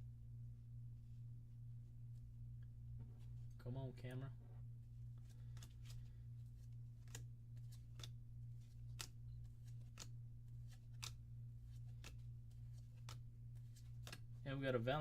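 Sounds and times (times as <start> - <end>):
low steady hum: 0.0 - 15.0
cards flicking: 5.2 - 14.4.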